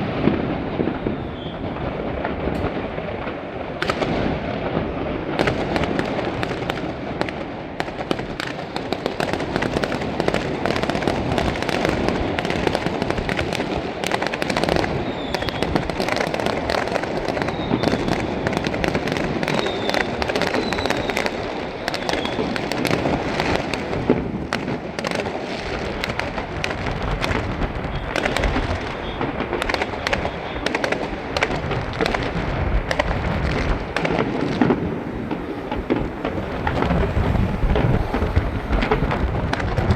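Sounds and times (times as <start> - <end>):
fireworks crackling and booming: 0.0 - 39.9
faint firework whistles: 0.1 - 2.8, 14.0 - 23.9, 27.0 - 39.9.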